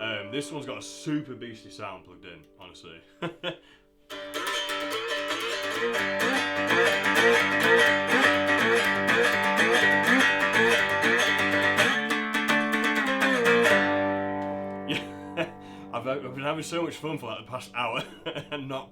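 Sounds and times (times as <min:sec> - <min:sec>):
electric cigar box guitar: 0:04.1 - 0:16.3.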